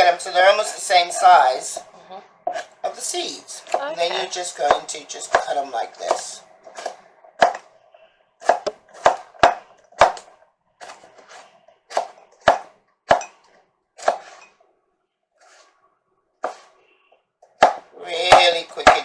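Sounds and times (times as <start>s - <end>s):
knife chopping on board: 4.6s - 7.7s, 8.4s - 13.4s, 14.0s - 14.4s, 16.4s - 16.7s, 17.6s - 19.0s.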